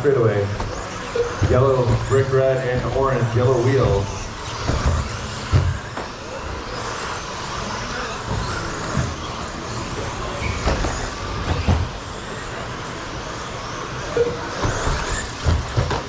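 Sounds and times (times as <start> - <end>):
electric motor whine: 0.0 - 16.0
short thumps: 0.6 - 6.1.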